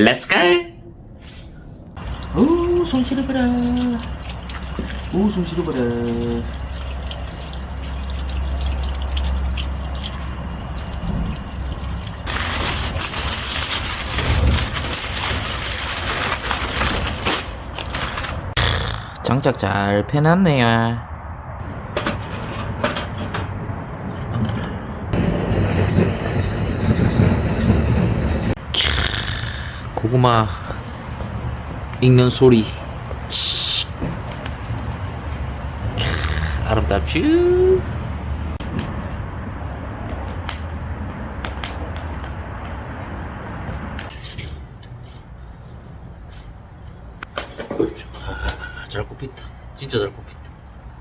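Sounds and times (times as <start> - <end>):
wood fire crackling: 9.3 - 18.6, 25.1 - 43.0
fire crackling and popping: 25.1 - 30.0
rushing hiss: 28.9 - 36.9.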